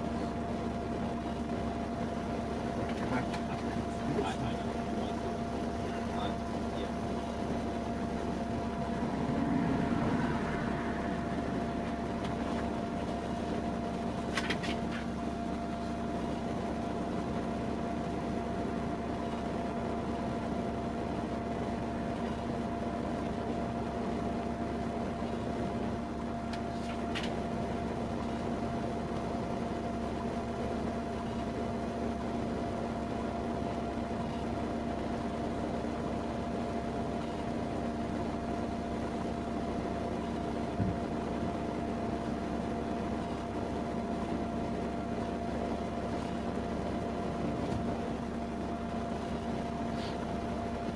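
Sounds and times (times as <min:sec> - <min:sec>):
vehicle interior mechanical hum: 0:00.0 - 0:32.4, 0:36.6 - 0:50.9.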